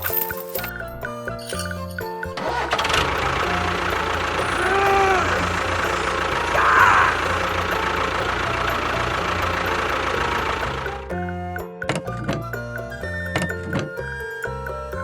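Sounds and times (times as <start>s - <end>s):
engine idling: 0.0s - 11.4s.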